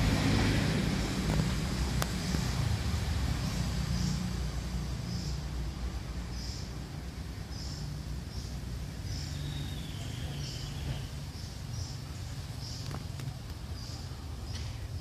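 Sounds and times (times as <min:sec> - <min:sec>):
small bird chirping: 0:01.3 - 0:15.0.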